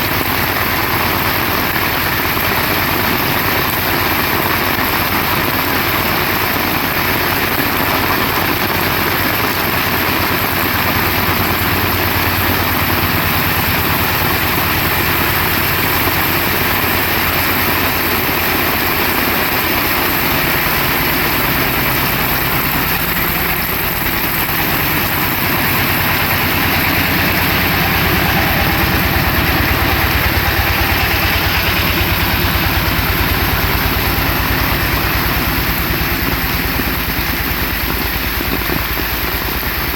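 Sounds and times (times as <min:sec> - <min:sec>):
heavy rain hissing: 0:00.0 - 0:39.9
low rumble: 0:20.2 - 0:39.8.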